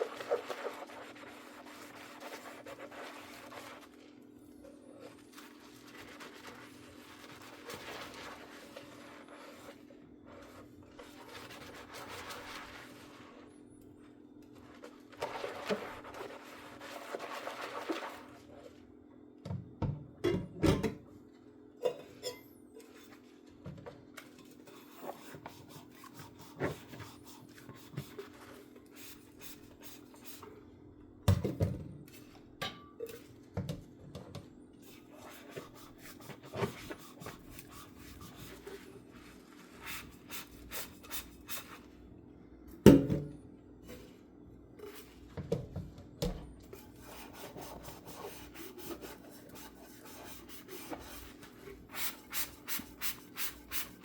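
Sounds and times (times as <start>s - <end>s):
sponge scrubbing dishes: 0.0s - 13.6s, 14.5s - 18.9s, 21.8s - 30.5s, 34.3s - 42.0s, 44.8s - 54.0s
dishes clinking: 21.8s - 23.0s.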